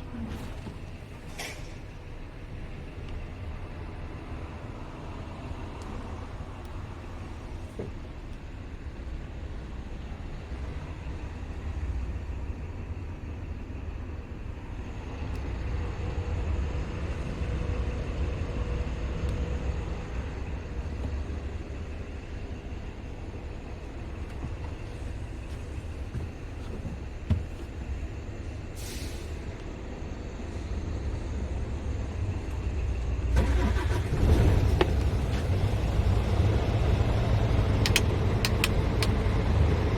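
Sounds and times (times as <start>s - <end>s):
truck diesel engine running: 15.7s - 39.9s
air hiss: 28.8s - 29.4s.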